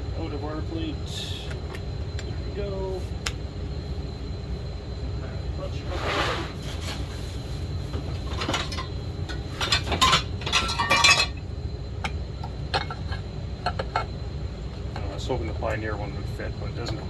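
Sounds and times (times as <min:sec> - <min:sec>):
metal parts and tools clinking: 0:08.2 - 0:11.4.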